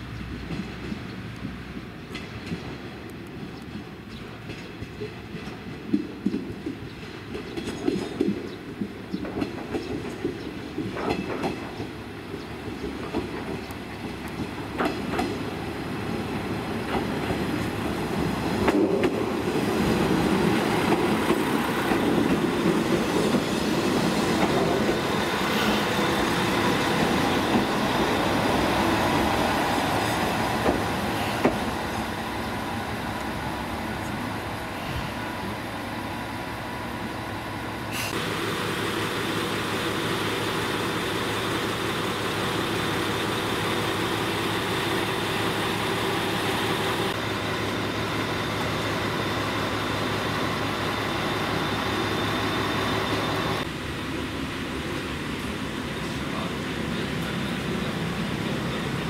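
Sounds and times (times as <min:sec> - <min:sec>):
diesel railcar running: 0:00.0 - 0:59.0
wheels clicking over rail joints: 0:00.3 - 0:15.5.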